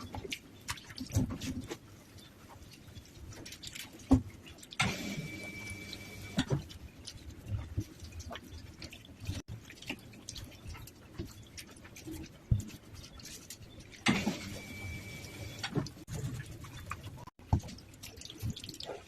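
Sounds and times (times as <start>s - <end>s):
rainwater dripping: 5.4s - 19.0s.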